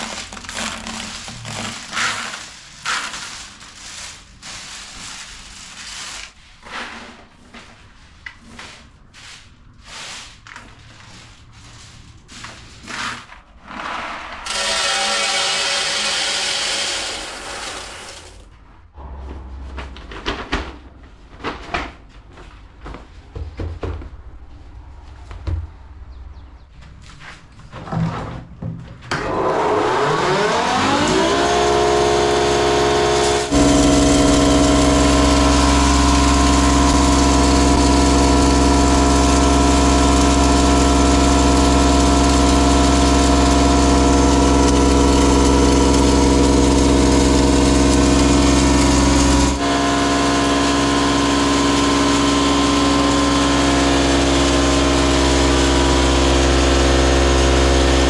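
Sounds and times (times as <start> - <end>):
motor starting and running: 13.7 - 19.1, 29.1 - 58.0.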